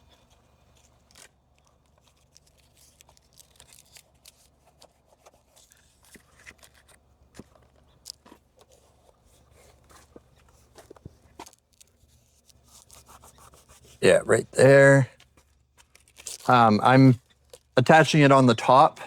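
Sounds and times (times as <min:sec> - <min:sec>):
tape tearing and crinkling: 0:15.8 - 0:16.5.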